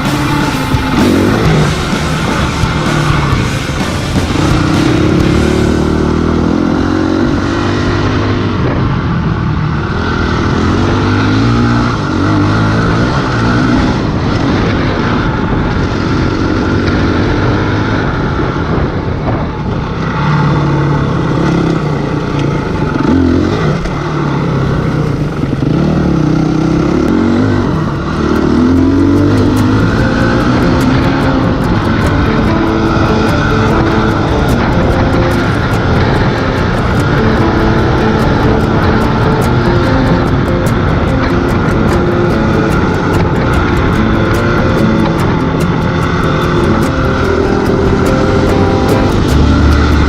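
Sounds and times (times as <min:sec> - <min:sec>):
wind rushing: 0:00.0 - 0:16.8, 0:27.2 - 0:50.0
dirt bike engine revving: 0:00.0 - 0:18.8, 0:20.1 - 0:50.0.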